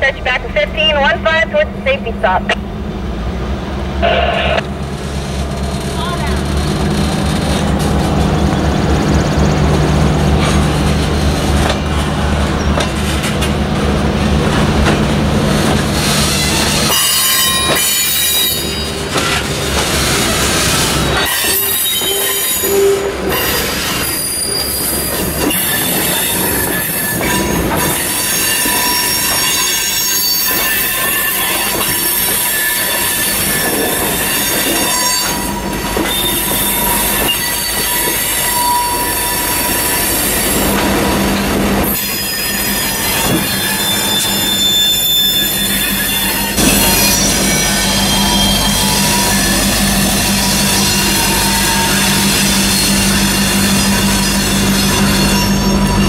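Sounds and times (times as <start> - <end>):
diesel locomotive engine drone: 0.0 - 56.0
rumble of train cars: 0.0 - 56.0
train wheels squealing: 16.0 - 19.1, 20.8 - 40.7, 41.9 - 56.0.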